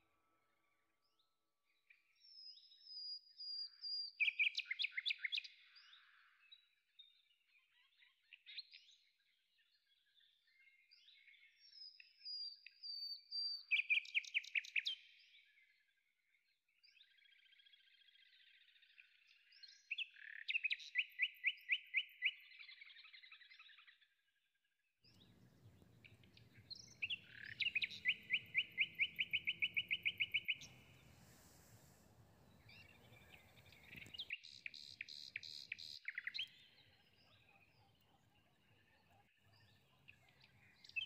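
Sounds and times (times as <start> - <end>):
songbird trilling: 25.2 - 36.8.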